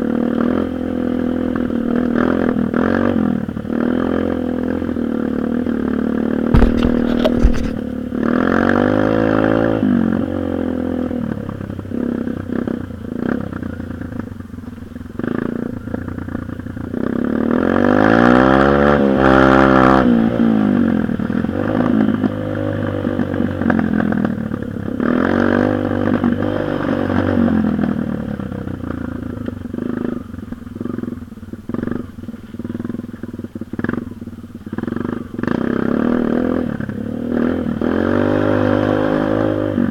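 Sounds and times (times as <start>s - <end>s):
dirt bike engine revving: 6.5s - 10.0s, 35.0s - 39.9s
sharp knocks: 6.6s - 7.8s.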